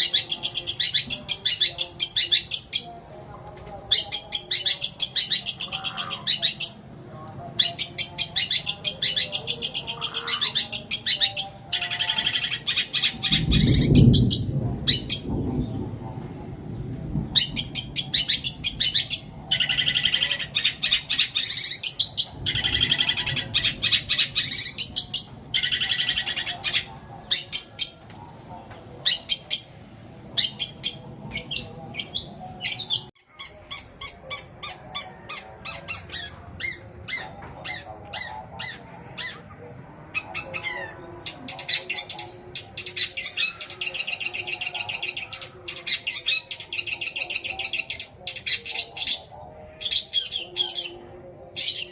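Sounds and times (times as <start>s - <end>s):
shrike singing mimicked calls: 0.0s - 3.0s, 3.9s - 6.9s, 7.6s - 15.3s, 17.4s - 28.0s.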